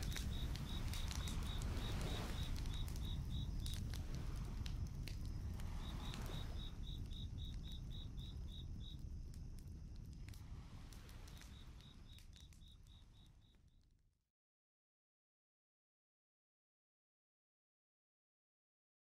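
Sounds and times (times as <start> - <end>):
crickets chirping: 0.0 - 13.9
crackling campfire: 0.0 - 14.1.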